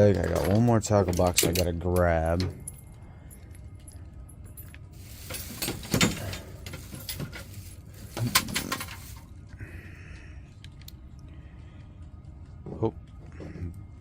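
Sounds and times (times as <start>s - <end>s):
tackle box gear rattling: 5.0s - 9.2s.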